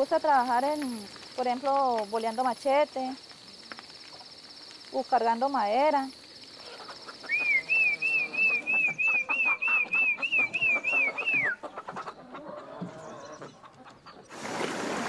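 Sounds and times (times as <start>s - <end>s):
bird whistling: 7.2s - 11.6s.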